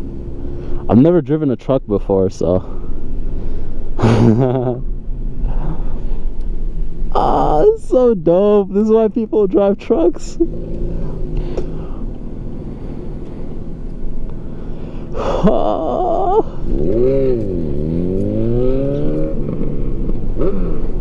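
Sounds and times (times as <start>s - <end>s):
vehicle engine revving: 10.4s - 21.0s.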